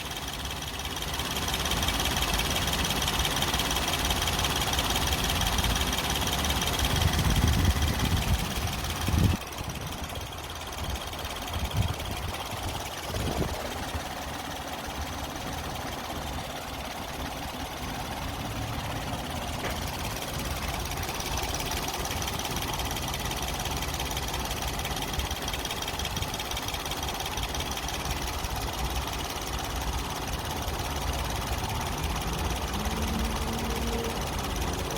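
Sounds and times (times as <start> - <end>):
car engine idling roughly: 0.0 - 34.9.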